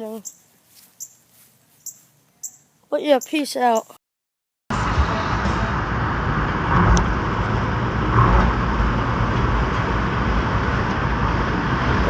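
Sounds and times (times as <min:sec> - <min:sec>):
road traffic rumble: 0:04.7 - 0:12.0.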